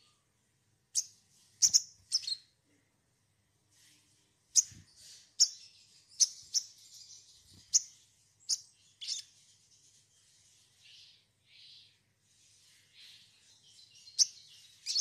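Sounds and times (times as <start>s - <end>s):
soft bird chatter: 0.0s - 3.0s, 3.7s - 15.0s
bird sharp high chirps: 0.9s - 2.5s, 4.5s - 9.6s, 13.0s - 15.0s.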